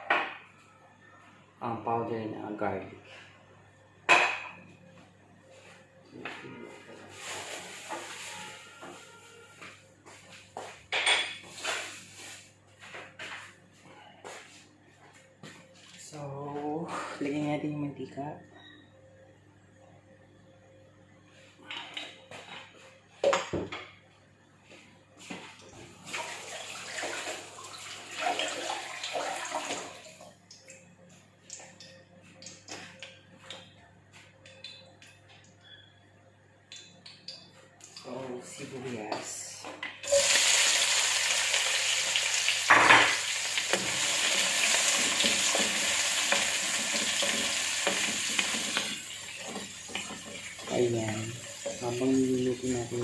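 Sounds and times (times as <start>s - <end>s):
onions sizzling in oil: 40.0s - 53.0s.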